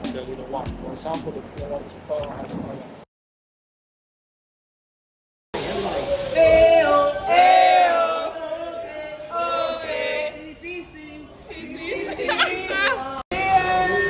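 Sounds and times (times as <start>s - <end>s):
voices singing long sliding notes: 5.7s - 14.0s.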